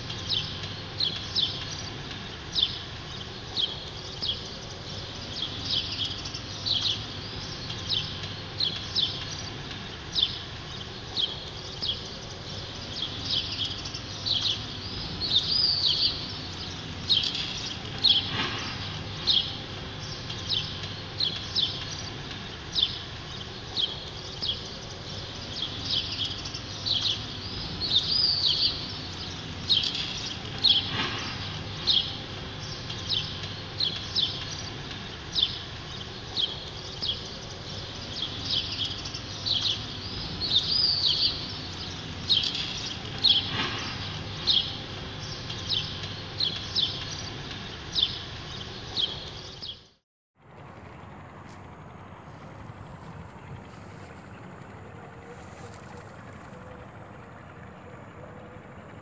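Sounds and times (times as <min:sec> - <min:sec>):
small birds chirping: 0:00.0 - 0:49.9, 0:51.4 - 0:57.5
low background noise: 0:50.4 - 0:59.0.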